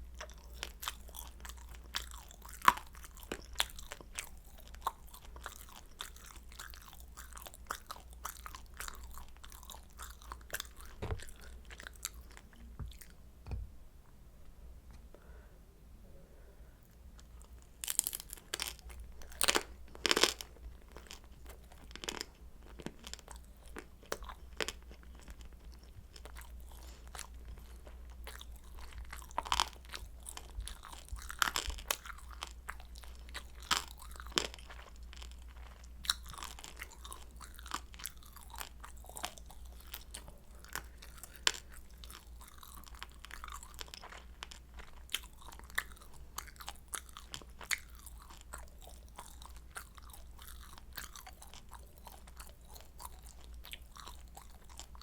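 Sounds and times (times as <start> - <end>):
chewing crispy dumplings: 0.0 - 13.2, 16.8 - 55.0.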